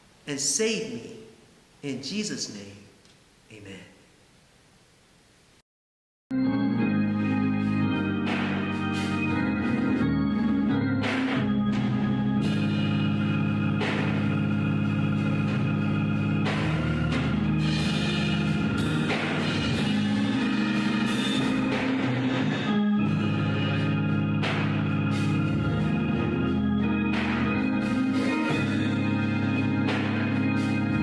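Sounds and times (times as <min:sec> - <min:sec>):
organ chords: 0:06.3 - 0:31.0
sharp percussion hits: 0:08.2 - 0:10.0, 0:11.0 - 0:12.8, 0:13.8 - 0:14.6, 0:24.4 - 0:25.9.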